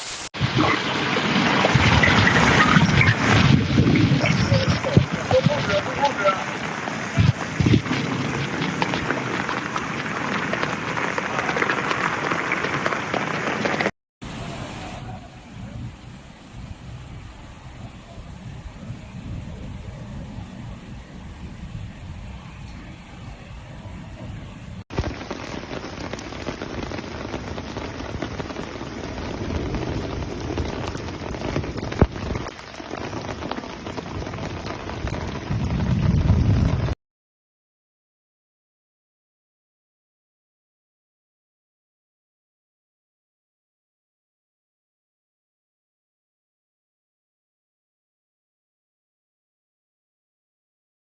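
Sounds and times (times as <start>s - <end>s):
heavy rain on hard surfaces: 0.0s - 37.0s.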